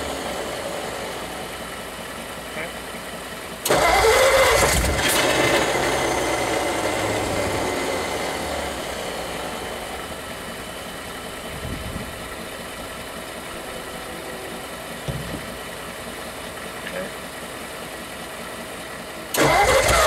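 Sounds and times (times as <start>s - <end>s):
car engine starting and idling: 0.0s - 20.0s
engine backfire bangs: 14.9s - 15.8s.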